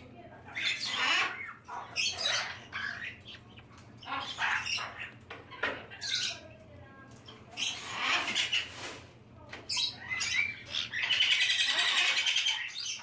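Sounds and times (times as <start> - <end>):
parrots squawking: 0.5 - 6.4, 7.5 - 8.8, 9.7 - 13.0.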